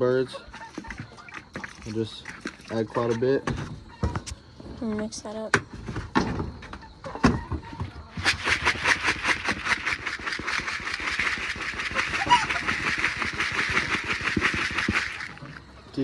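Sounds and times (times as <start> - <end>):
feed stirred in container: 8.2 - 15.6.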